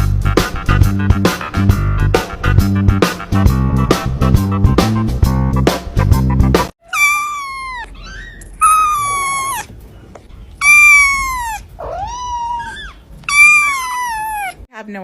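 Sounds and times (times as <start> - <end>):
music: 0.0 - 6.7
cat meowing loudly: 6.8 - 9.7, 10.6 - 14.6.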